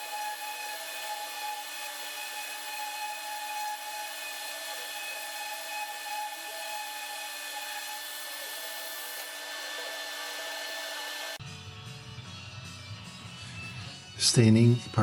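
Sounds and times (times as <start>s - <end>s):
power sander on wood: 0.0s - 11.4s.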